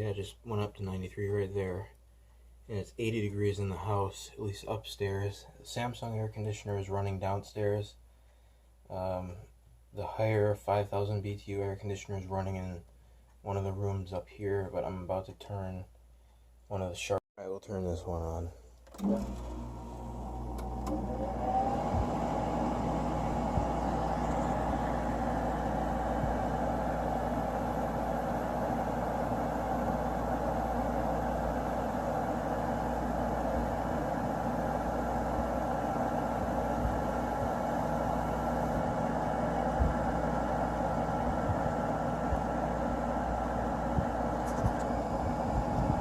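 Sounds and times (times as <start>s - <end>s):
air conditioner fan whine and hum: 18.2s - 46.0s.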